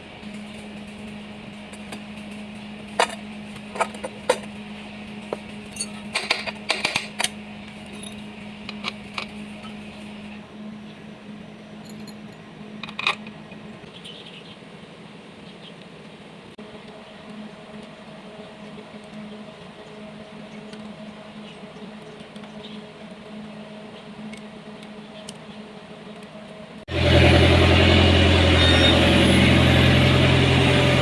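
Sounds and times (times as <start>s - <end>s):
metal tools clinking: 5.7s - 7.3s, 7.9s - 9.3s, 11.8s - 13.4s.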